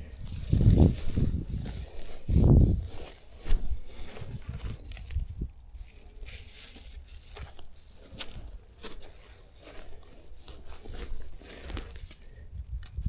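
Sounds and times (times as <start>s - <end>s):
plastic bag crinkling: 4.2s - 12.3s.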